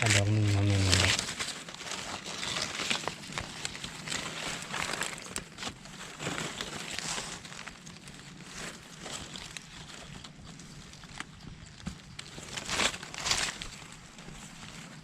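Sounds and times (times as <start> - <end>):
rustling in dry leaves: 0.0 - 15.0.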